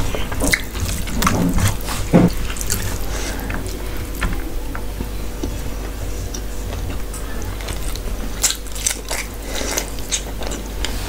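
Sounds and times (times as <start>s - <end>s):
wet chewing and mouth smacking: 0.0s - 5.6s, 6.3s - 11.0s.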